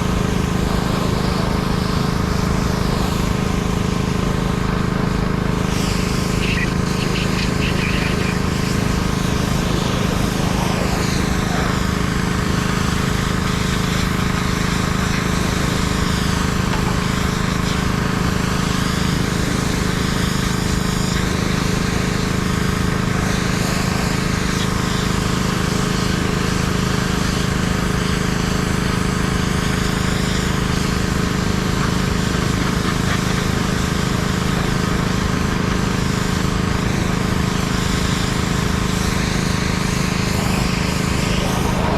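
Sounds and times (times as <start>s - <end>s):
pressure washer engine humming: 0.0s - 41.9s
water spray hissing: 5.6s - 22.3s, 37.6s - 41.9s.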